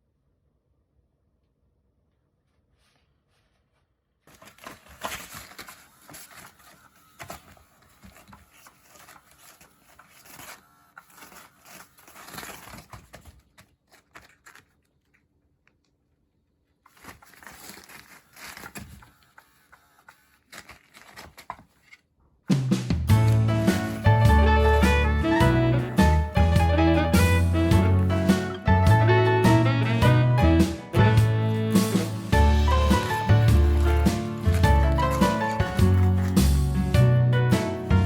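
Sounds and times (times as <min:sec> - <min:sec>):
rustling and crinkling: 0:02.1 - 0:30.2, 0:30.8 - 0:38.0
kittens playing with toys: 0:04.3 - 0:15.9, 0:16.7 - 0:22.1, 0:23.1 - 0:30.1, 0:31.6 - 0:38.0
music: 0:22.6 - 0:38.0.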